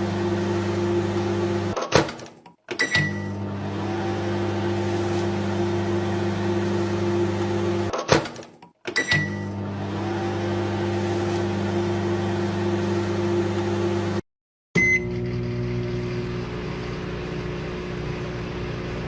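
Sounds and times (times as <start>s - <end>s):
microwave oven humming: 0.0s - 1.8s, 3.0s - 7.9s, 14.8s - 19.0s
short beep: 14.8s - 15.2s.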